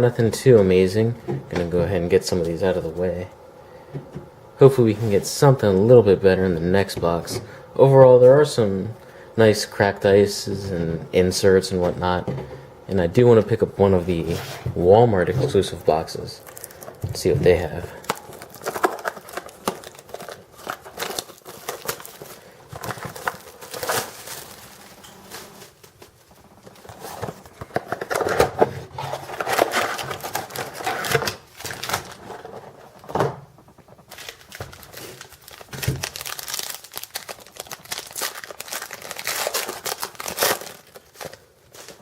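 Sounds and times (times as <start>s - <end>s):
plastic wrappers crinkling and tearing: 15.2s - 42.0s.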